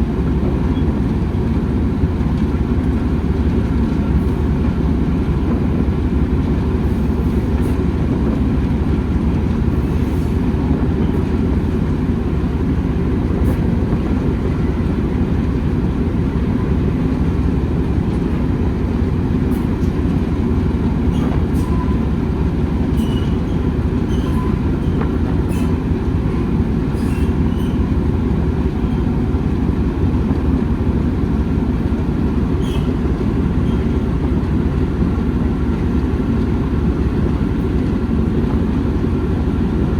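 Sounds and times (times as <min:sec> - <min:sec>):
train rumbling on track: 0:00.0 - 0:39.9
faint squeaks and clicks: 0:22.9 - 0:25.8, 0:27.0 - 0:27.9, 0:32.6 - 0:34.0.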